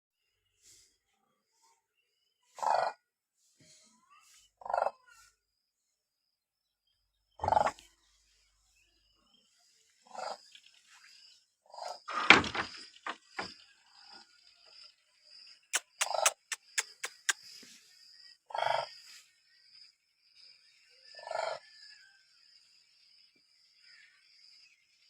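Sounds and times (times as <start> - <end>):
sharp clicks: 15.8 - 17.4.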